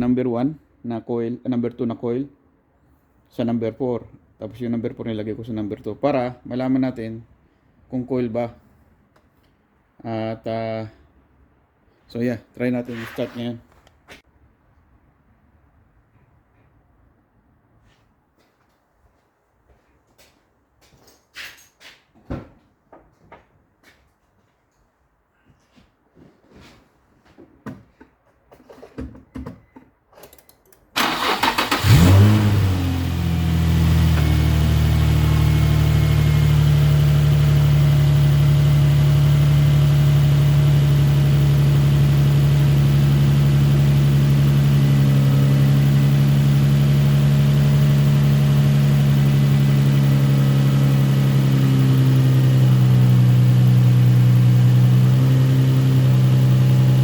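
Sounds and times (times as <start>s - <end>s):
car engine starting and idling: 31.0s - 57.0s.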